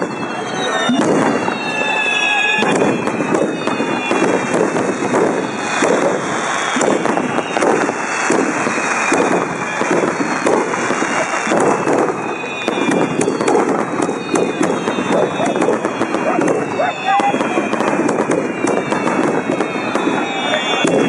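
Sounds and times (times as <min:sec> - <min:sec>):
fireworks hissing and crackling: 0:00.0 - 0:21.0
faint whistles: 0:12.1 - 0:17.6.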